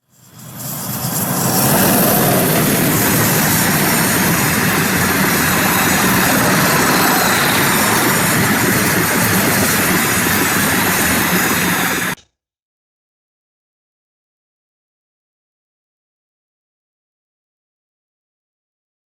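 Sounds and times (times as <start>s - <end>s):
freight train rushing rumble: 0.0s - 12.2s.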